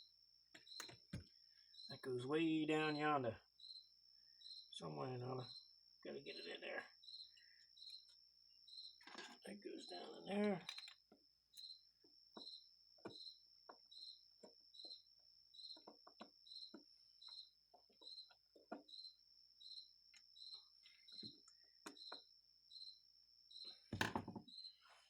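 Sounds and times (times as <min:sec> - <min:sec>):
faint cricket chirping: 0:00.0 - 0:25.0
small metal parts clicking: 0:10.5 - 0:11.7.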